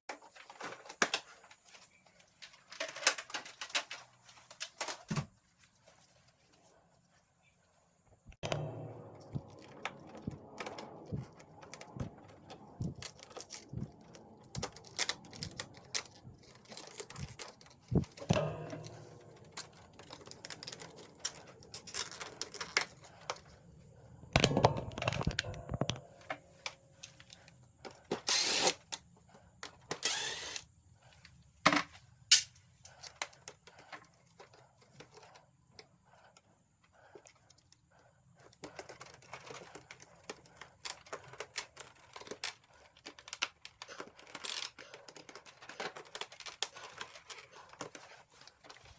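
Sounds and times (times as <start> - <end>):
tools and parts clicking and knocking: 2.3 - 5.3, 8.4 - 23.6, 24.4 - 30.6, 38.4 - 48.9.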